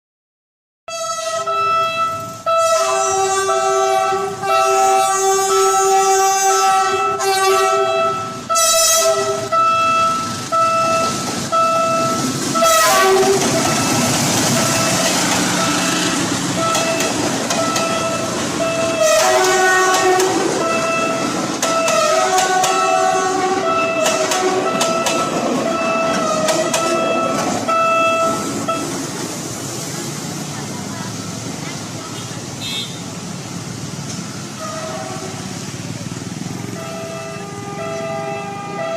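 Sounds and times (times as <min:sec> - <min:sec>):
train horn blasts: 0:00.9 - 0:15.0, 0:15.6 - 0:29.0, 0:34.6 - 0:35.4, 0:36.8 - 0:38.9
train rushing past: 0:01.0 - 0:38.9.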